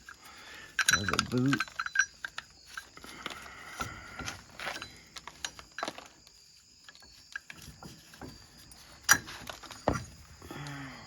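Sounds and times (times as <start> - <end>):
metal parts clicking and knocking: 0.0 - 6.2.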